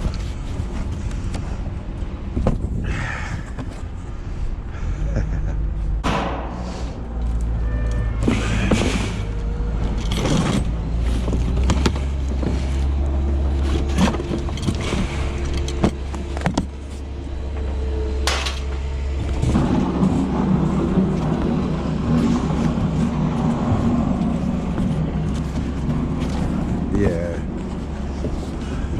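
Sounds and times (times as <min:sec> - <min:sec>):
vehicle engine running: 0:03.8 - 0:28.9
metal clanks and knocks: 0:06.0 - 0:28.8.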